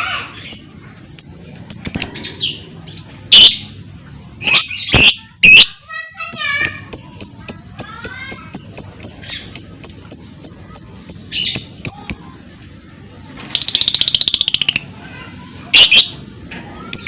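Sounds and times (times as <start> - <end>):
chattering bird trill: 0.1 - 3.8, 4.4 - 12.4, 13.4 - 16.2.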